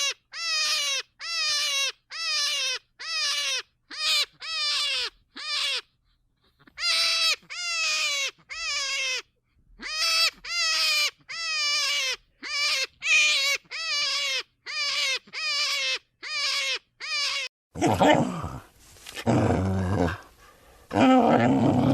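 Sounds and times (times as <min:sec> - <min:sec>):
animal high-pitched calls: 0:00.0 - 0:17.5.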